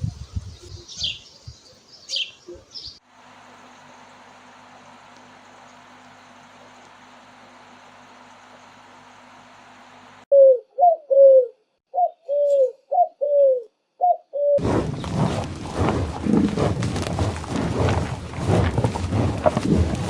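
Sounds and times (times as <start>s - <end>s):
pigeon cooing: 10.3s - 14.6s
outdoor mixed noise: 14.6s - 20.0s.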